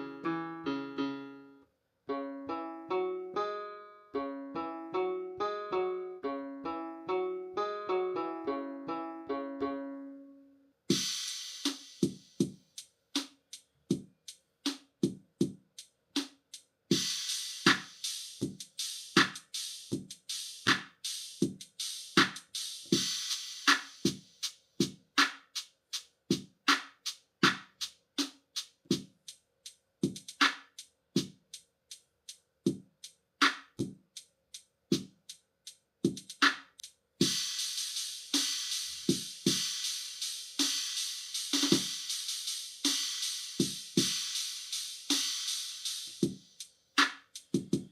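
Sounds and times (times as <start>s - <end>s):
drum machine beat: 10.9s - 47.9s.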